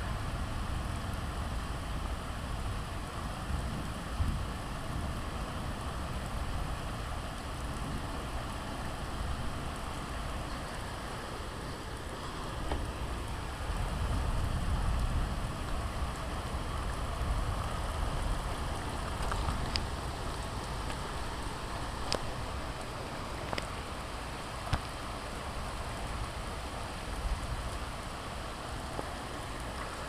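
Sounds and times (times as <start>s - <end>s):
low thunder rumble: 0.0s - 11.0s, 12.4s - 23.0s
steady rain falling: 0.0s - 30.0s.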